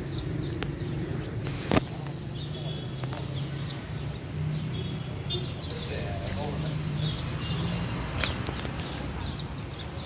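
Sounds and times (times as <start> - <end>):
faint bird chirps: 1.4 - 3.0, 5.3 - 8.4
sharp click: 1.5 - 2.5, 8.1 - 8.8.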